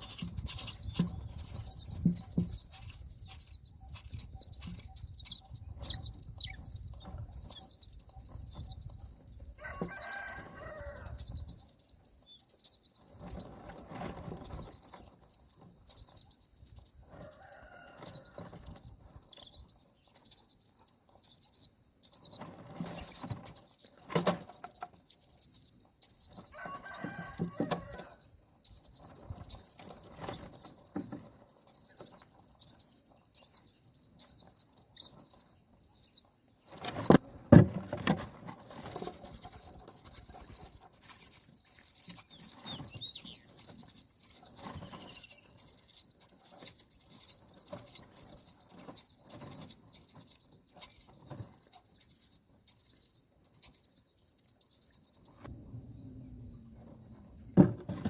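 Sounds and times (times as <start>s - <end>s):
nestlings chirping: 0.0s - 55.5s, 56.5s - 58.0s
thump with rustling: 36.8s - 38.8s, 57.4s - 58.0s.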